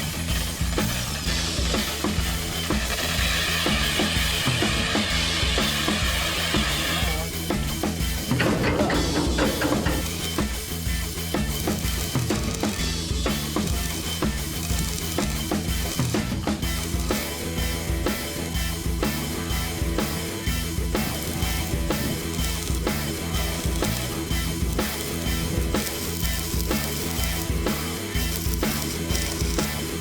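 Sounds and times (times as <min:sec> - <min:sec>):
rock background music: 0:00.0 - 0:30.0.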